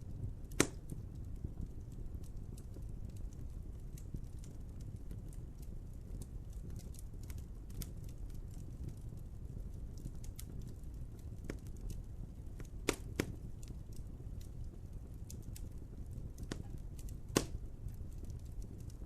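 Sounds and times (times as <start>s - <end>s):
fire pops and snaps: 0.0s - 19.0s
wood fire crackling: 0.0s - 19.0s.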